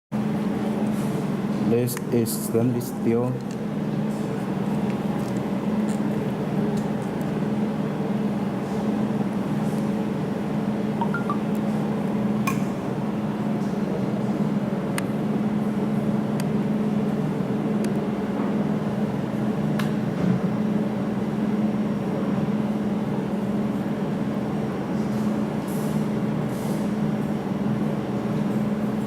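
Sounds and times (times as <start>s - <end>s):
cooling system hum: 0.2s - 29.0s.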